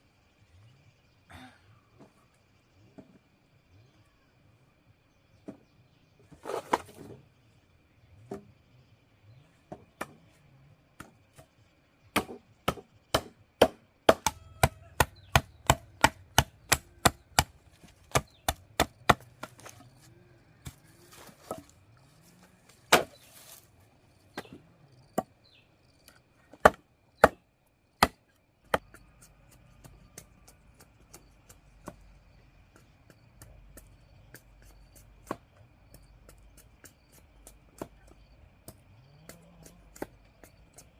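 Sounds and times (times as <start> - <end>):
blade chopping into wood: 12.2 - 19.8, 22.9 - 23.3.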